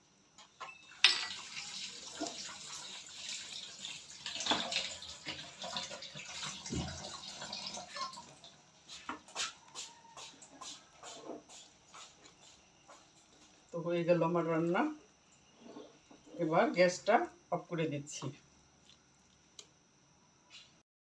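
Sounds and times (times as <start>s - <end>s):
filling sizzling in a pan: 0.9s - 13.5s.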